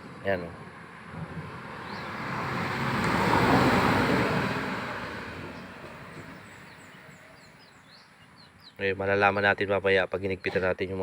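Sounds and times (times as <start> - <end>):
vehicle passing: 0.0 - 7.8.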